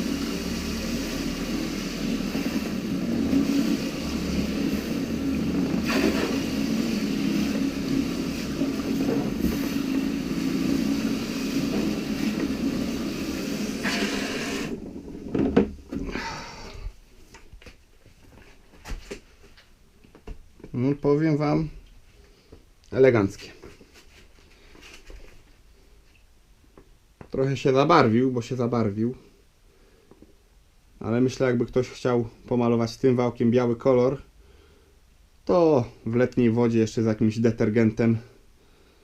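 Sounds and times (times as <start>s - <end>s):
roller spinning in spraying water: 0.0s - 15.7s.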